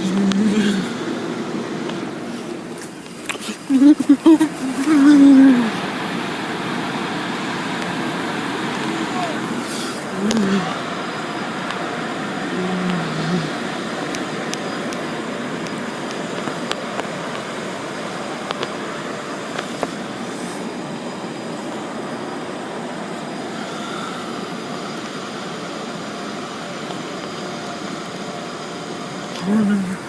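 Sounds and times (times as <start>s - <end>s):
water spray rushing: 0.0s - 22.0s
car wash machinery: 0.0s - 30.0s.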